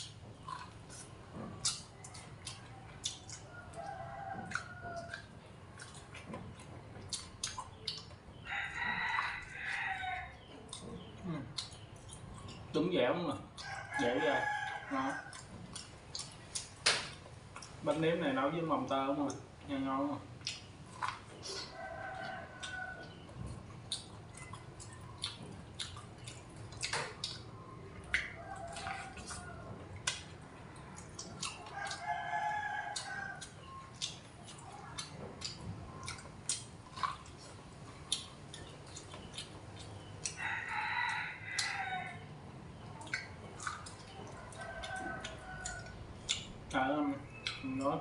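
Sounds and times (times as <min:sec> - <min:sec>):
chickens calling: 0:00.0 - 0:19.1, 0:19.7 - 0:48.0
wet chewing and smacking: 0:00.0 - 0:48.0.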